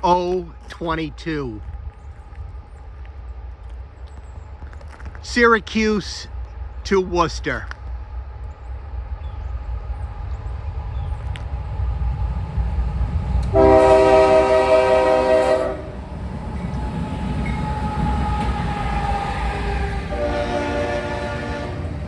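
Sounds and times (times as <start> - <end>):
freight train rumbling past: 0.0 - 22.0
train air horn blast: 13.5 - 16.0, 19.8 - 22.0.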